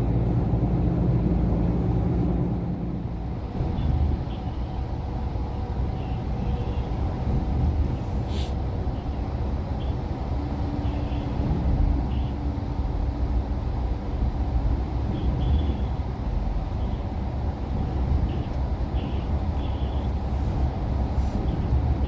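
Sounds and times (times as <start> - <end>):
truck engine and road rumble: 0.0 - 22.0
short hiss: 8.2 - 8.6.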